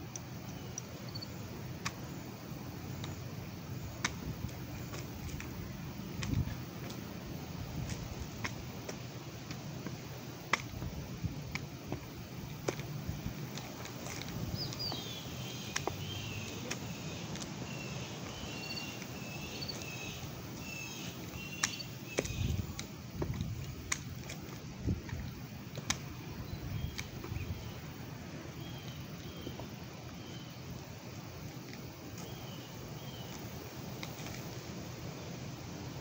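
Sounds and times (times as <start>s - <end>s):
bird chirping: 0.4s - 1.4s, 14.4s - 22.8s, 26.3s - 30.6s
steady low rumble: 0.9s - 28.6s.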